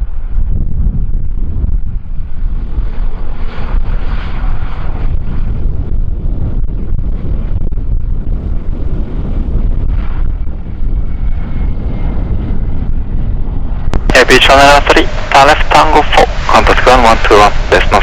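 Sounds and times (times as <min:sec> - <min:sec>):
wind buffeting microphone: 0:00.0 - 0:18.0
faint wind hiss: 0:14.0 - 0:18.0.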